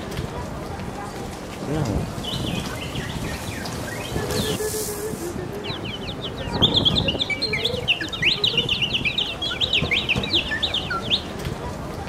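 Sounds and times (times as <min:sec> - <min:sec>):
high-pitched bird-like chirping: 0:05.6 - 0:11.3.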